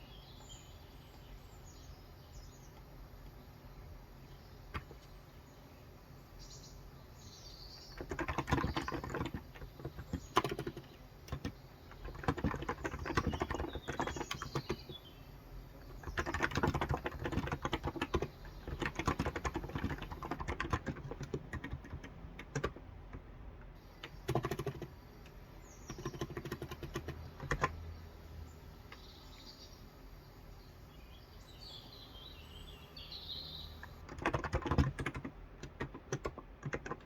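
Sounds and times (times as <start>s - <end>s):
birds chirping: 0.0s - 22.8s, 23.8s - 37.0s
keyboard typing: 4.7s - 5.1s, 7.8s - 14.9s, 15.8s - 23.3s, 24.0s - 27.8s, 33.8s - 37.0s.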